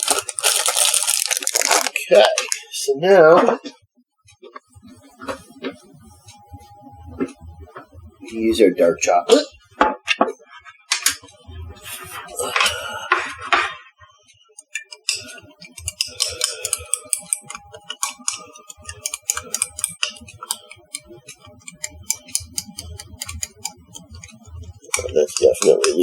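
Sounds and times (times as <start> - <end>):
quick clicks and crinkles: 0.0 - 2.6.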